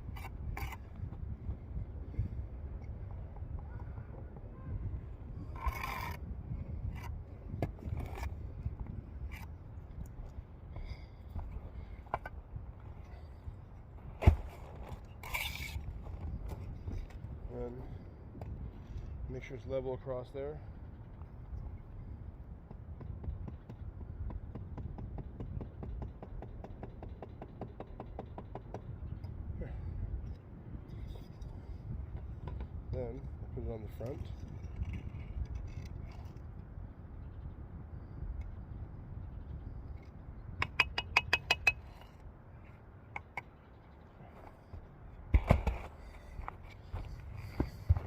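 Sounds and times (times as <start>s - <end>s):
trowel tapping brick: 40.6s - 42.0s.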